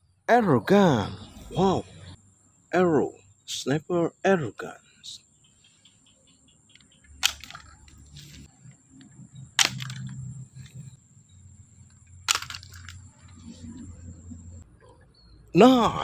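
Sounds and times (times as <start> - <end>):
sharp clicks: 6.7 - 8.1, 8.9 - 10.8.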